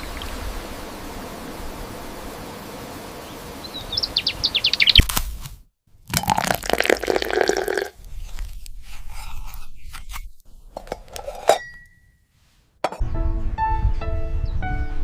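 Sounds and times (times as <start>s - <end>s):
scattered clicks and scrapes: 8.0s - 11.5s.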